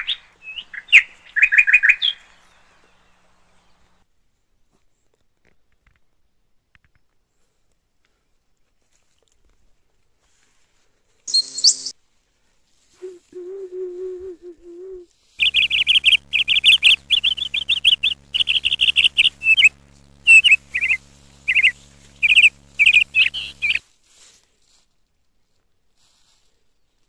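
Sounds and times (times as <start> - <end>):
high bird chirps and trills: 11.3 - 11.9, 15.4 - 23.8
steady low hum: 11.3 - 11.9, 13.0 - 23.8.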